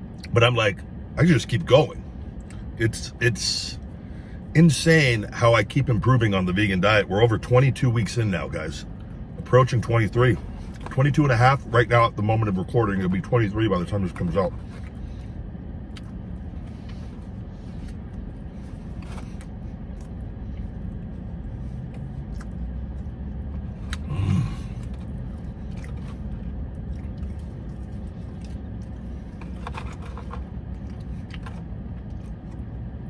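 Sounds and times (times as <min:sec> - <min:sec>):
car interior rumble: 0:00.0 - 0:33.0
small clicks and scrapes: 0:27.0 - 0:32.6.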